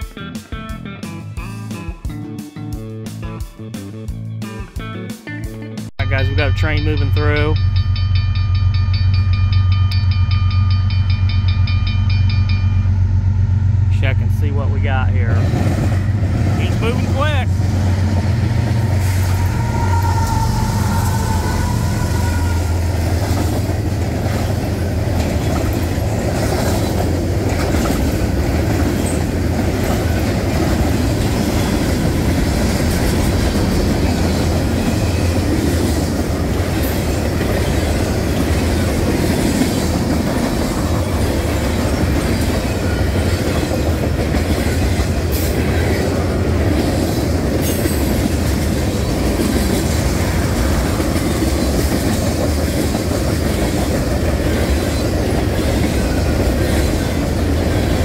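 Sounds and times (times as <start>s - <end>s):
locomotive diesel drone: 6.0s - 27.6s
wheel rumble: 13.6s - 58.0s
wheels clacking over rail joints: 22.3s - 58.0s.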